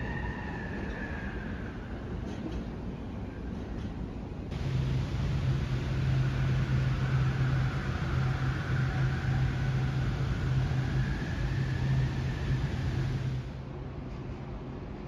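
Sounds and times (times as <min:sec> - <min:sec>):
train pulling out humming: 0:04.2 - 0:14.5
faint whine climbing in pitch: 0:04.5 - 0:13.6.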